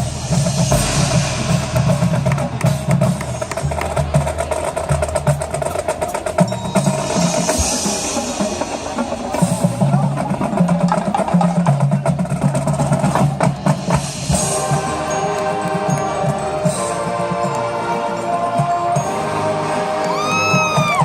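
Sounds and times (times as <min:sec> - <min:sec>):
drum and percussion passage: 0:00.0 - 0:21.0
marching band playing: 0:00.0 - 0:21.0.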